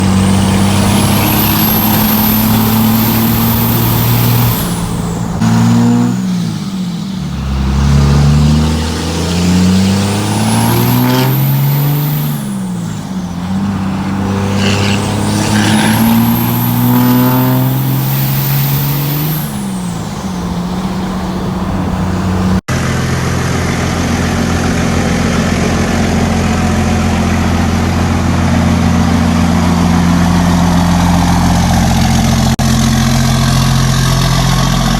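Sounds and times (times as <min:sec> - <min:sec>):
high turbo whistle: 0:00.0 - 0:07.8, 0:08.8 - 0:22.6
diesel engine revving: 0:00.0 - 0:34.9.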